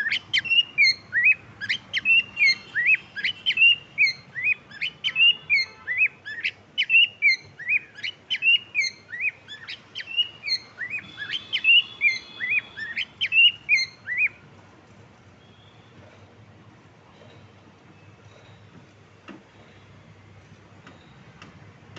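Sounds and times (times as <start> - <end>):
cockatiel chirping: 0.0 - 14.4.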